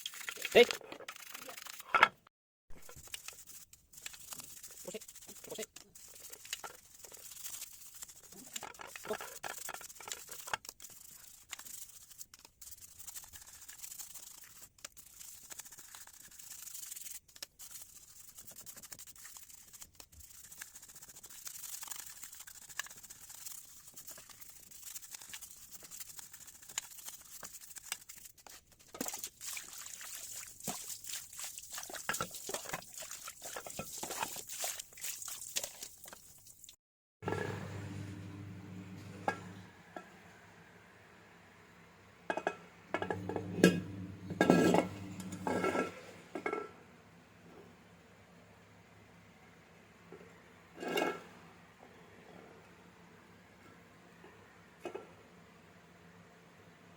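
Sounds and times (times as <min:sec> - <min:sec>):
scrubbing engine parts: 0:00.0 - 0:40.2, 0:42.3 - 0:46.6.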